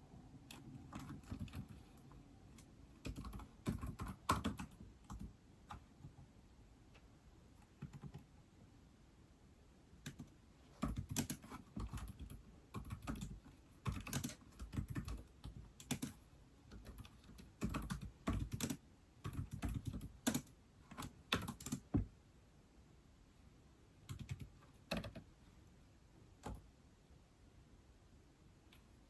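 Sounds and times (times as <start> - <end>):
typing on tablet keyboard: 0.4 - 6.3, 7.6 - 8.3, 10.0 - 22.1, 24.0 - 25.3, 26.4 - 26.7.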